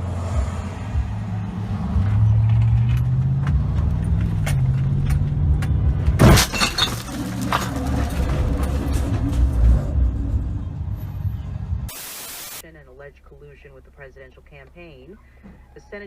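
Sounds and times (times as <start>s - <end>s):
debris clattering: 6.2s - 10.4s
vehicle collision crash: 6.2s - 10.5s.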